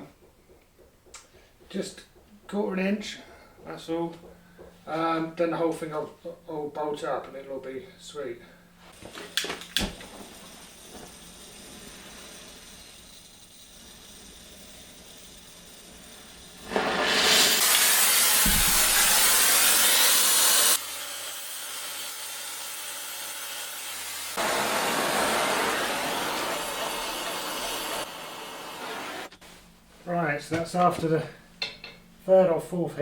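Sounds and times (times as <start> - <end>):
blowtorch flame hissing: 9.0 - 29.4.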